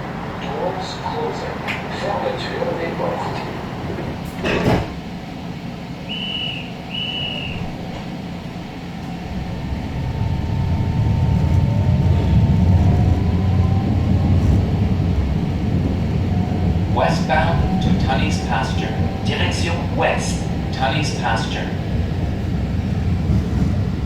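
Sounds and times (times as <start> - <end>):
train rumble: 0.0 - 24.0
rising motor whine: 9.1 - 15.8.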